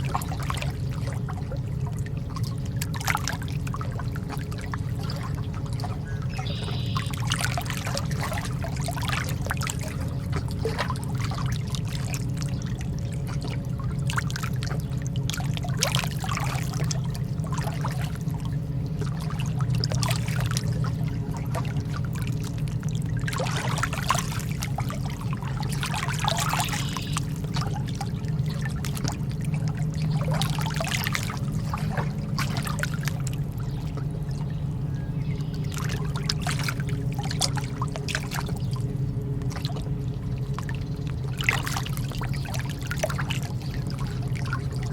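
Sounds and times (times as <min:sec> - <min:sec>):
low rumble: 0:00.0 - 0:44.9
water lapping: 0:00.0 - 0:44.9
waves splashing: 0:13.2 - 0:34.4, 0:35.6 - 0:38.9.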